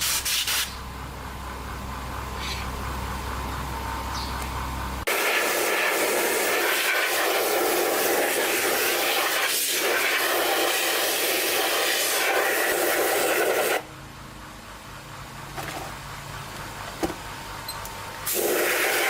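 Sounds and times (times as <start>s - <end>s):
low hum: 0.7s - 5.1s
loud rushing hiss: 5.1s - 13.9s, 18.2s - 19.0s.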